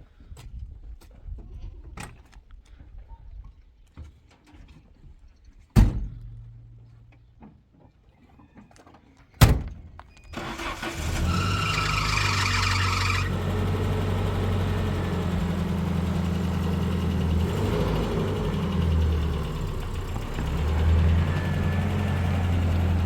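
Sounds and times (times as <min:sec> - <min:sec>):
car engine starting and idling: 0:10.3 - 0:23.0.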